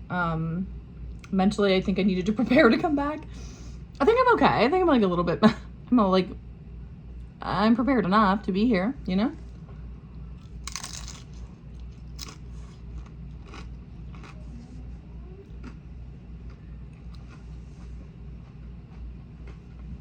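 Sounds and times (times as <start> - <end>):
crunchy bite: 10.3 - 14.4
person chewing with clicks: 10.4 - 14.5, 15.5 - 15.8, 16.4 - 17.5.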